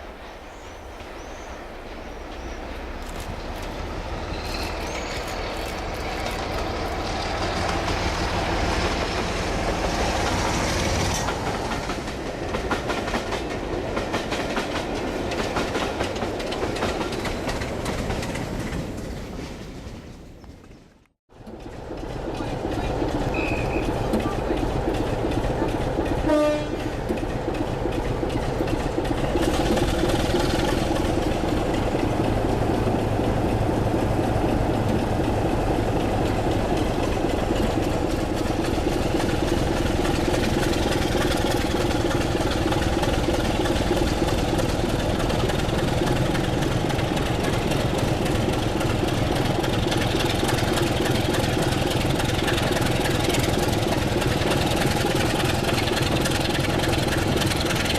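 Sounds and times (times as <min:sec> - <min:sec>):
diesel locomotive engine and wheels: 0:00.0 - 0:57.9
locomotive horn blast: 0:26.2 - 0:26.9.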